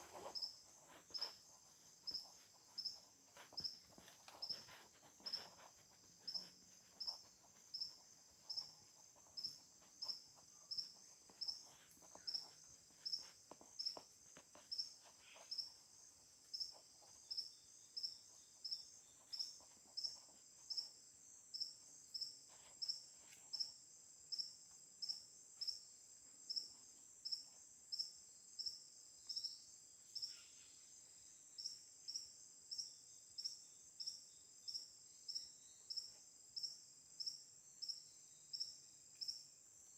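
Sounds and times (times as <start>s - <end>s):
faint rustles: 0.0s - 16.1s
continuous insect buzz: 0.0s - 39.9s
insect high chirp: 0.0s - 39.9s.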